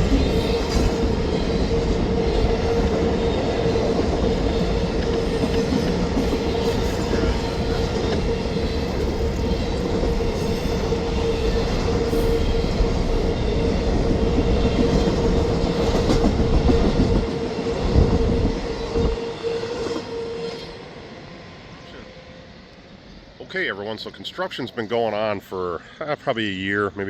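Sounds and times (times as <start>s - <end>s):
rail clatter: 0.0s - 20.1s
train knocks: 0.0s - 20.2s
train rumbling past: 0.0s - 27.0s.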